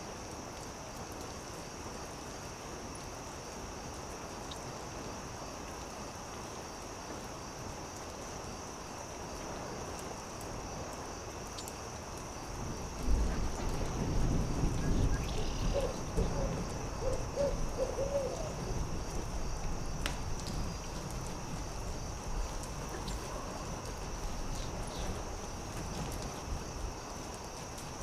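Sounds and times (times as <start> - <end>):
owl hooting: 15.2 - 18.6
campfire crackling and popping: 18.6 - 28.0.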